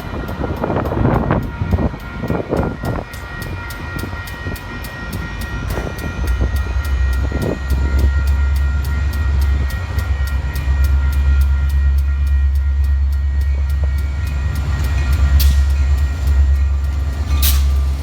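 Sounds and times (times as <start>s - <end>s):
train passing rumble: 0.0s - 18.0s.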